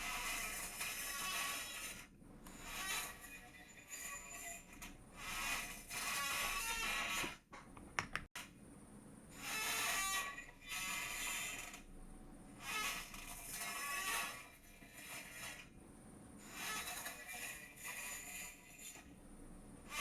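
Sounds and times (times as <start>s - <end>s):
chair creaking and squeaking: 0.0s - 7.4s, 9.5s - 11.8s, 16.6s - 18.5s
sharp clicks: 7.8s - 8.3s.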